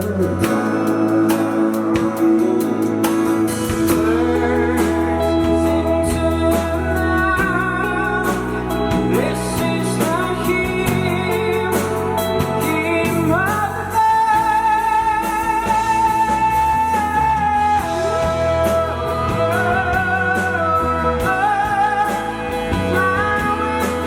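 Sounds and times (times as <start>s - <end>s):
lead singer singing: 0.0s - 24.0s
rock band playing live: 0.0s - 24.0s.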